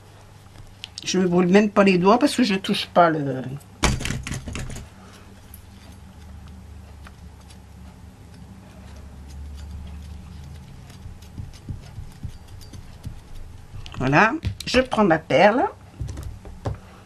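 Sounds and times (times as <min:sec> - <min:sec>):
low steady hum: 0:00.0 - 0:17.0
hands tapping craft pieces: 0:10.0 - 0:14.9, 0:16.0 - 0:16.9.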